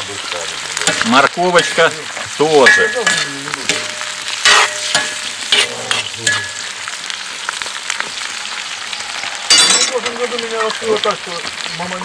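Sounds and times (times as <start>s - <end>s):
food sizzling in hot oil: 0.0s - 12.0s
ladle scraping wok: 0.8s - 6.8s.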